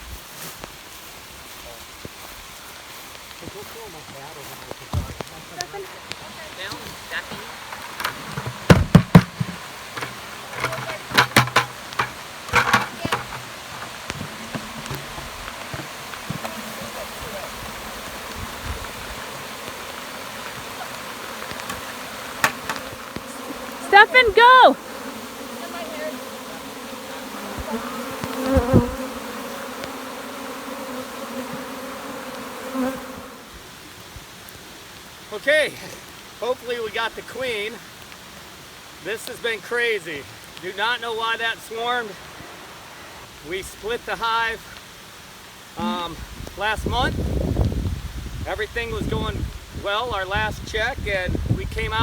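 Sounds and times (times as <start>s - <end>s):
bees buzzing: 5.8s - 33.9s
sharp knocks and thumps: 7.3s - 17.0s, 22.4s - 23.0s.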